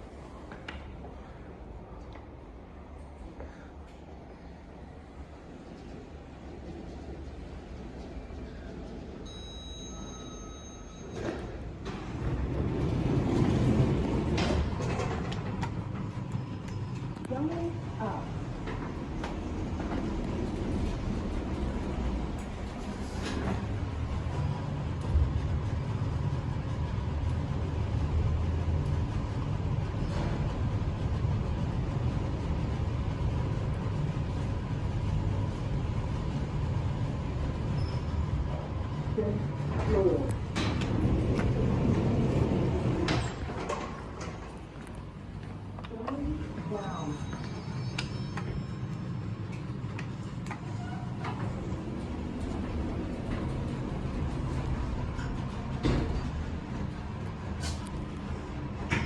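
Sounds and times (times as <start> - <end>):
lift doors clunking: 11.0 - 35.0, 36.0 - 59.0
air noise: 11.1 - 45.9, 47.5 - 59.0
door mechanism rumble: 11.1 - 46.6, 47.4 - 59.0.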